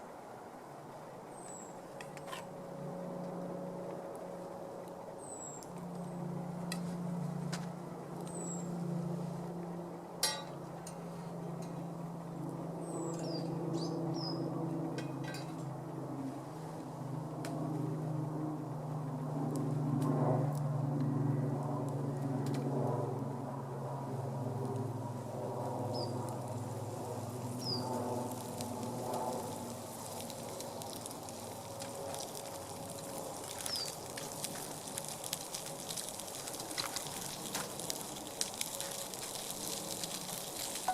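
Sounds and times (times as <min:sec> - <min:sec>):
low engine-like hum: 0:00.0 - 0:40.9
meat sizzling in a skillet: 0:32.2 - 0:40.9.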